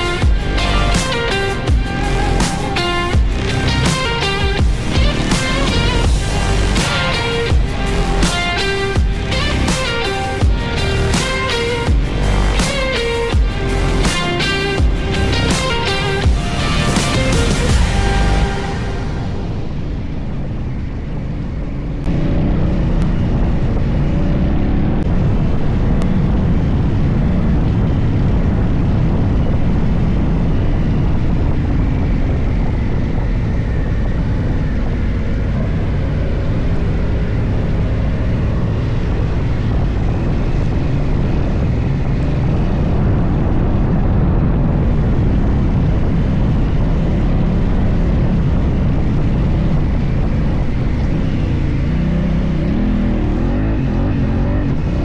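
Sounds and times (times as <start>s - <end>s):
motorcycle engine running: 0.0s - 19.6s
wind and road noise: 0.0s - 55.0s.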